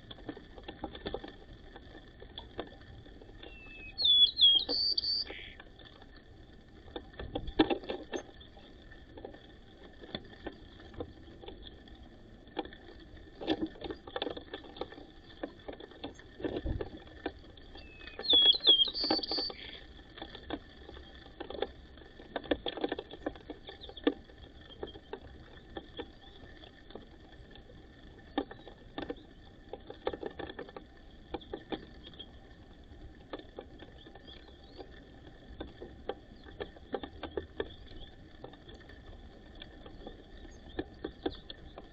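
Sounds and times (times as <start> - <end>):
birds pecking at seed: 0.1 - 41.9
bird chirp: 3.4 - 5.6, 17.7 - 19.8.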